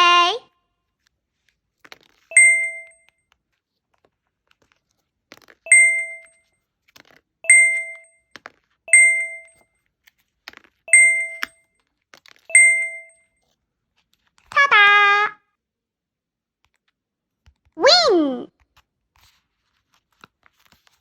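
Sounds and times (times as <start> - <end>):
bright ding chime: 2.3 - 3.0, 5.7 - 6.3, 7.5 - 8.1, 8.9 - 9.6, 10.9 - 11.5, 12.5 - 13.2.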